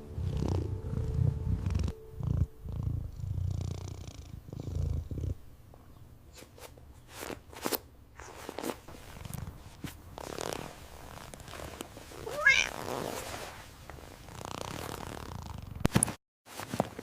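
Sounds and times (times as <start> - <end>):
cat purring: 0.0 - 5.5, 14.1 - 15.9.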